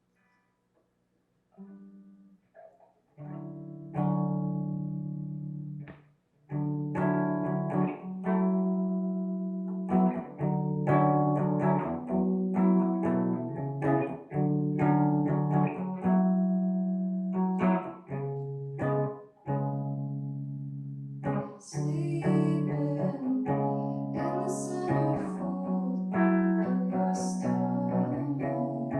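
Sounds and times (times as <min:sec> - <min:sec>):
amplified guitar chords: 0:01.6 - 0:02.4, 0:03.2 - 0:28.9.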